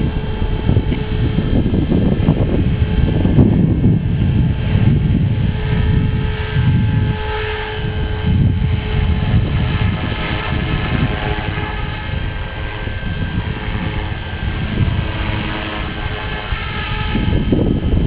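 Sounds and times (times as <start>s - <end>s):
rc helicopter whine: 0.0s - 18.0s
wind rumble on microphone: 0.0s - 18.0s.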